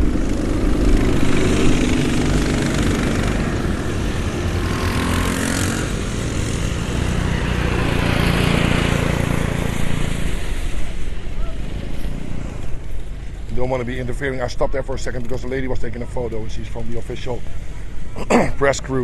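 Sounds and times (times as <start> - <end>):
vehicle engine running: 0.0 - 14.2.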